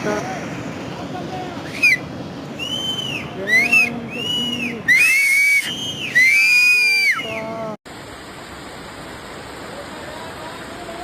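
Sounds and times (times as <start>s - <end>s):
floodwater rushing: 0.0s - 11.0s
drawn-out rising and falling whistles: 1.6s - 7.6s.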